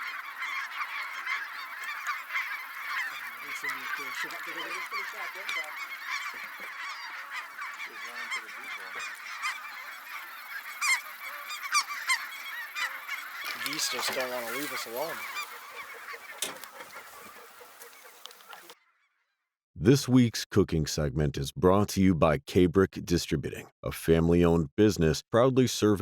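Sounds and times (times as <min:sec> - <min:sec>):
flock of geese honking: 0:00.0 - 0:18.8.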